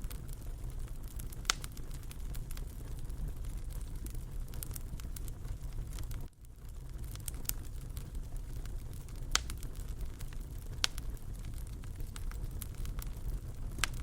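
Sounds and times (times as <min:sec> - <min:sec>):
fire crackles and pops: 0:00.0 - 0:14.0
fire rumbling: 0:00.0 - 0:14.0.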